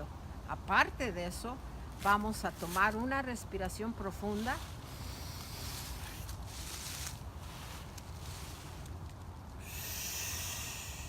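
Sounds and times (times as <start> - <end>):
person breathing deeply: 4.8 - 6.2, 9.6 - 11.0.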